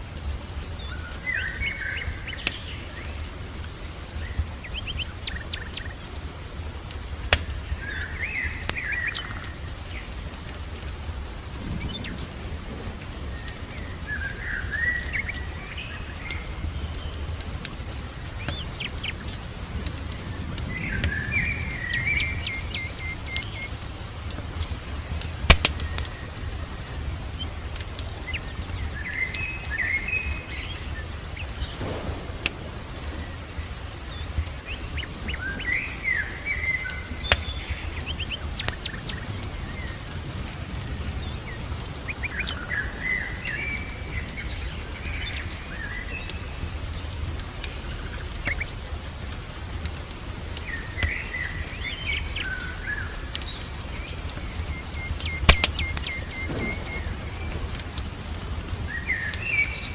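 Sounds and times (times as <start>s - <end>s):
sharp crackles and pops: 0.0s - 59.9s
songbird warbling: 53.9s - 57.6s.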